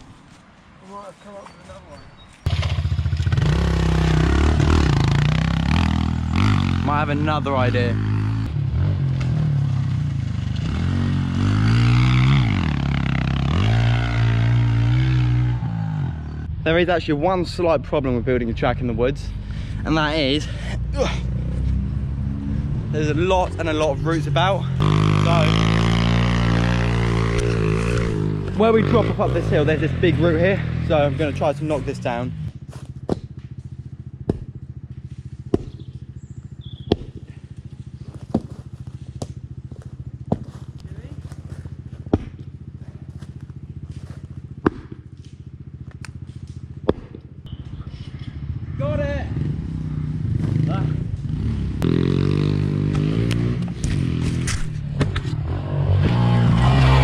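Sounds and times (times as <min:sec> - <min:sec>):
pit bike engine revving: 0:02.5 - 0:16.6, 0:18.8 - 0:57.0
motorbike engine idling: 0:32.4 - 0:51.3
chopping strikes on tree root: 0:34.3 - 0:34.5, 0:35.5 - 0:35.9, 0:36.8 - 0:37.2, 0:44.6 - 0:45.0.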